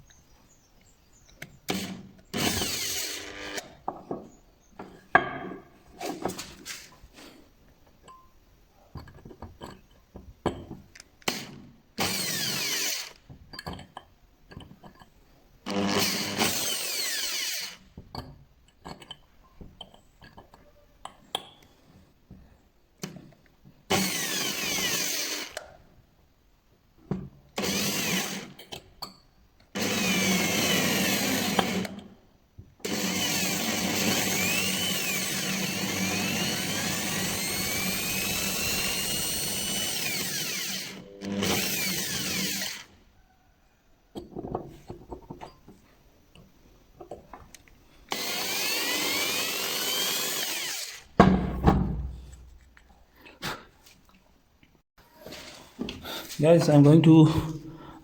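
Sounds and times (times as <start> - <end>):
electric drill running in bursts: 1.7 - 3.6, 12.0 - 13.2, 15.7 - 17.8, 23.9 - 25.6, 27.6 - 28.5, 29.8 - 31.9, 32.8 - 42.9, 48.1 - 51.1.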